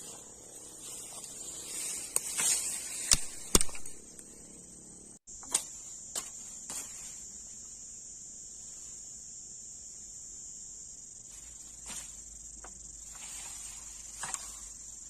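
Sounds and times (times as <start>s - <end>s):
crickets chirring: 0.0s - 15.0s
sharp clicks: 3.0s - 4.3s.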